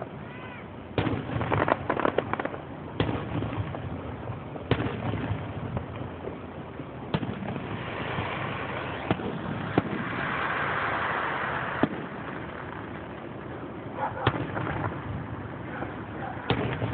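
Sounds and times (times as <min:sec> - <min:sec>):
fireworks bangs: 0:00.0 - 0:16.9
fireworks hiss: 0:06.9 - 0:16.9.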